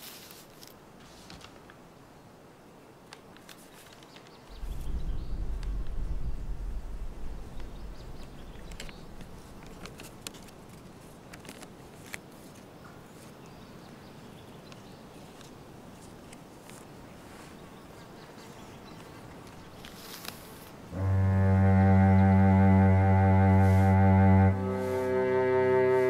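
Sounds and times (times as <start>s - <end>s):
outdoor ambience: 0.0s - 26.0s
low rumble: 4.5s - 9.8s
paper being handled and folded: 8.6s - 13.4s.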